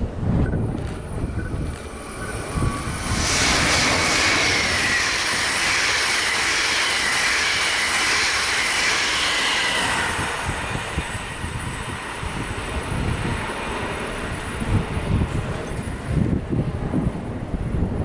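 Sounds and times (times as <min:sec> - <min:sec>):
high whine of train: 0:00.0 - 0:18.0
passenger train passing: 0:00.0 - 0:18.0.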